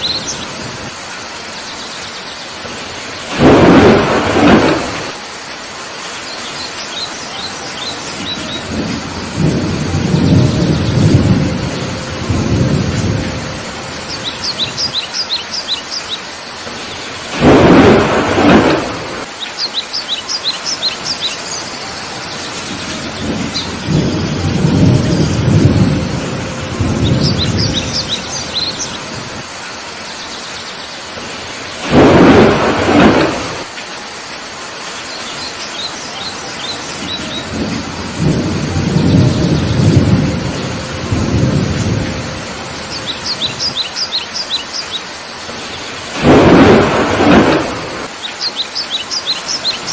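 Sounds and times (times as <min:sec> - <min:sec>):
bird chirping: 0:00.0 - 0:00.5, 0:06.2 - 0:08.8, 0:14.0 - 0:17.2, 0:19.3 - 0:24.4, 0:27.0 - 0:29.2, 0:42.8 - 0:45.9, 0:48.1 - 0:49.9
heavy rain falling: 0:00.0 - 0:49.9
low rolling thunder: 0:02.6 - 0:05.3, 0:07.8 - 0:15.0, 0:16.7 - 0:19.3, 0:21.8 - 0:29.5, 0:31.2 - 0:33.7, 0:36.6 - 0:44.1, 0:45.5 - 0:48.2
loud thunderclaps: 0:02.7 - 0:05.2, 0:08.1 - 0:15.0, 0:17.2 - 0:19.3, 0:22.6 - 0:29.5, 0:31.2 - 0:33.7, 0:36.9 - 0:43.8, 0:45.5 - 0:48.1.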